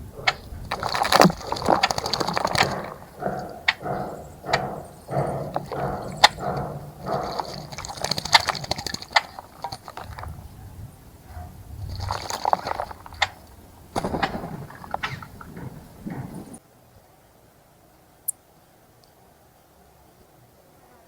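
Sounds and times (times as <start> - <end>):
birds splashing in water: 0.0 - 16.6
sharp clicks and snaps: 0.2 - 10.3.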